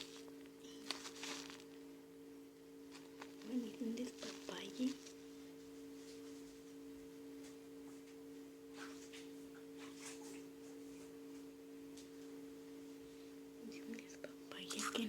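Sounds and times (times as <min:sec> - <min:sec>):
low two-tone hum: 0:00.0 - 0:15.0.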